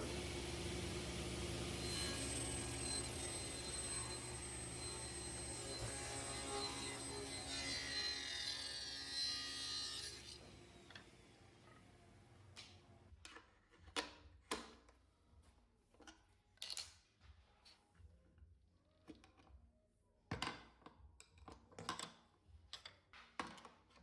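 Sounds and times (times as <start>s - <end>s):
power tool running: 0.0s - 11.6s.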